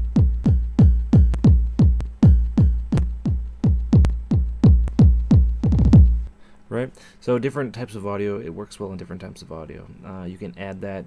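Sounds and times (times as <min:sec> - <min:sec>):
electronic kick drum: 0:00.0 - 0:06.3.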